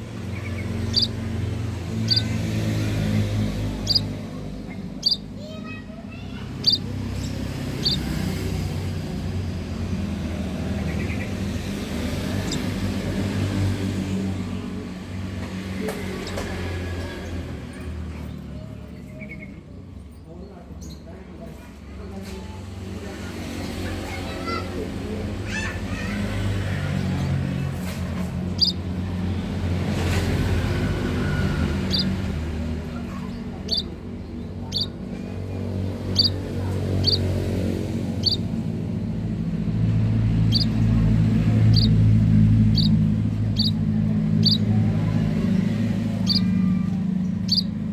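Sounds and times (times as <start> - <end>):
vehicle engine running: 0.0 - 20.1, 21.4 - 47.9
small birds chirping: 0.0 - 47.9
bird chirps: 0.2 - 2.4, 3.0 - 5.6, 6.5 - 8.1, 28.6 - 28.9, 31.1 - 32.3, 33.1 - 35.0, 36.1 - 36.4, 37.0 - 37.3, 38.1 - 38.5, 40.4 - 40.9, 41.6 - 44.7, 45.6 - 47.8
low engine drone: 27.3 - 47.9.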